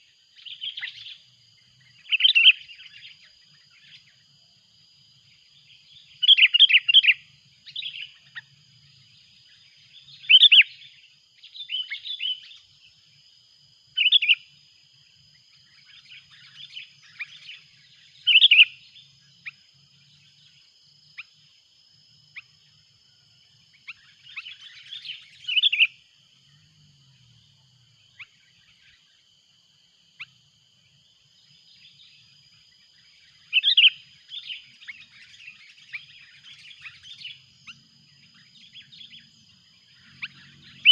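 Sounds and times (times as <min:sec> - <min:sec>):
faint high-pitched whine: 0:00.0 - 0:40.9
bird calling: 0:15.9 - 0:19.6, 0:23.9 - 0:26.0, 0:33.4 - 0:40.9.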